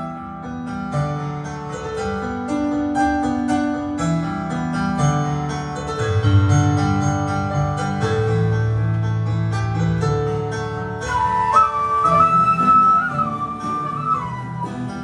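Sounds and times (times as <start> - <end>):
plucked strings: 11.0 - 15.0
orchestra playing: 11.1 - 15.0.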